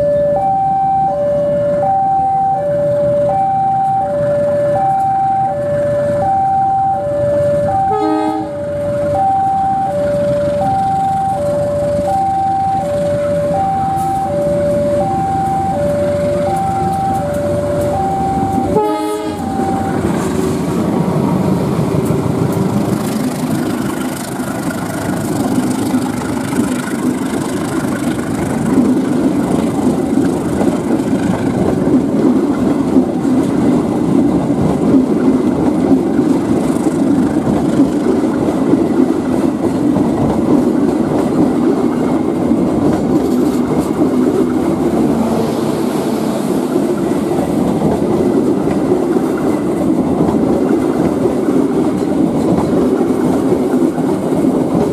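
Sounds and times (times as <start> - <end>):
two-tone electronic warning alarm: 0.0 - 20.4
train wheels clacking on rails: 7.5 - 54.9.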